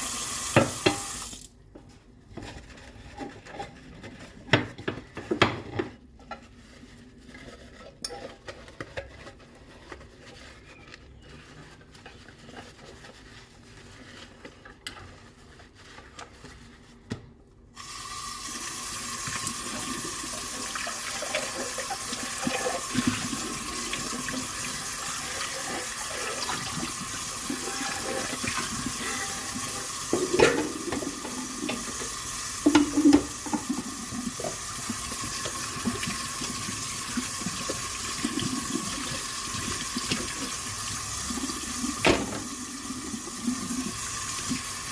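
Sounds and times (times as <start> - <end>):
tap water running: 0.0 - 1.6, 17.8 - 44.9
dishes clinking: 29.0 - 31.8.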